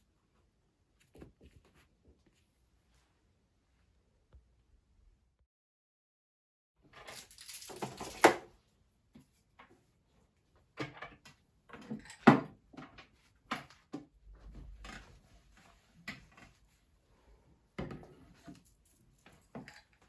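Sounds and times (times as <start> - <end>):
objects knocking and clattering: 17.8 - 20.0.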